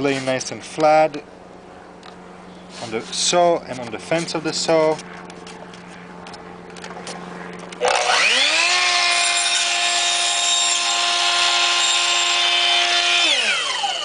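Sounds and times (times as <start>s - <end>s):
miter saw motor whine: 4.0s - 14.0s
saw blade cutting styrofoam: 7.8s - 14.0s.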